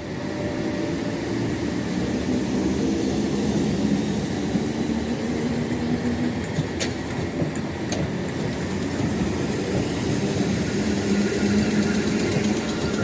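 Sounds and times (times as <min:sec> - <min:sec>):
train engine drone: 0:00.0 - 0:13.0.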